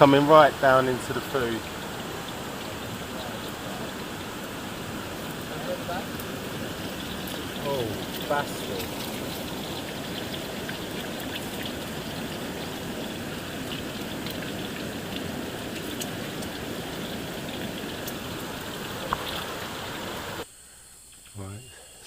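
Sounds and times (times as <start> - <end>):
water hissing: 0.0 - 20.4
small drip-like ticks: 0.4 - 20.4, 21.0 - 21.4.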